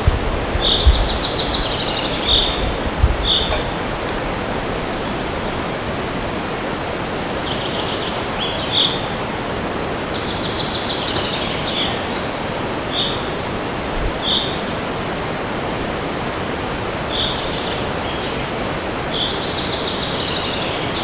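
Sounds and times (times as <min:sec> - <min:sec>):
wind in a forest: 0:00.0 - 0:21.0
songbird trilling: 0:00.3 - 0:05.9, 0:10.0 - 0:14.8.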